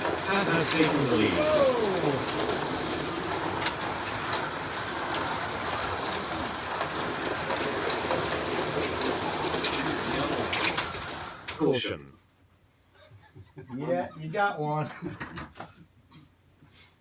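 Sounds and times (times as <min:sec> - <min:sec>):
slot cars whirring and rattling: 0:00.0 - 0:11.6.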